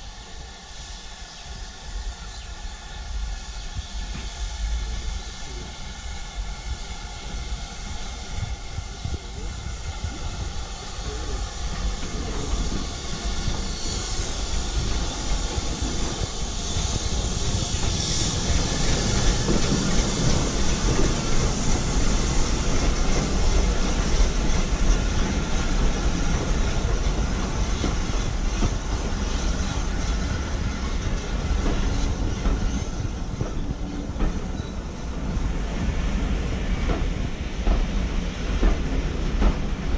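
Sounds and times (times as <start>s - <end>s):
train wheels clattering on rails: 6.7s - 39.9s.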